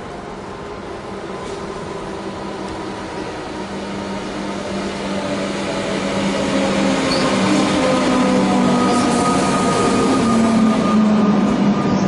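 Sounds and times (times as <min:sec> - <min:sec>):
electric train humming drone: 0:00.0 - 0:12.0.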